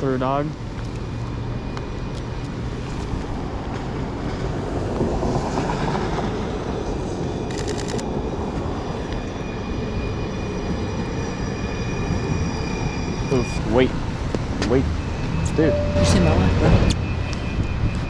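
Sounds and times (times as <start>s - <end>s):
rail trolley rumbling: 0.0s - 18.0s
thin high whine: 14.9s - 18.0s.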